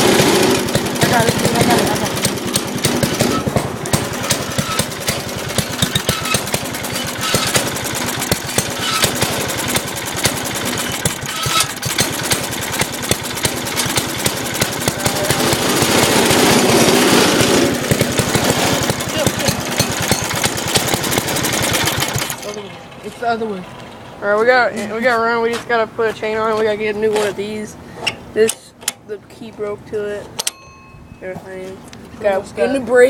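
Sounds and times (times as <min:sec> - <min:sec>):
go-kart engine running: 0:00.0 - 0:25.0.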